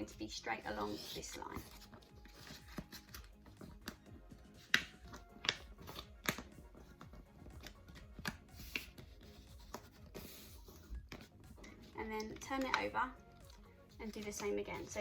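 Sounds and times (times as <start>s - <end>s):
paper crinkling: 0.8s - 4.0s.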